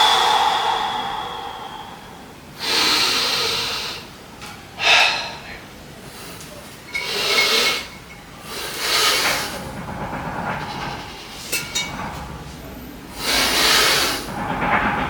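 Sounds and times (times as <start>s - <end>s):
person exhaling forcefully: 0.0s - 3.8s.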